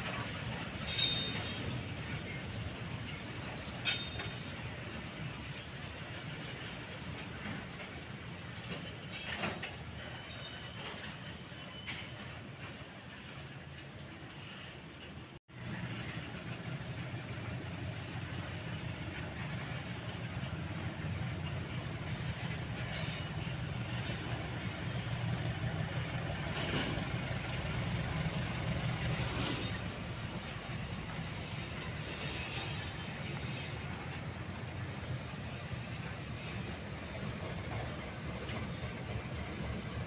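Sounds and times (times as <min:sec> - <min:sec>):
diesel locomotive running: 0:00.0 - 0:40.0
short high-pitched train noises: 0:28.9 - 0:34.5, 0:35.1 - 0:37.0.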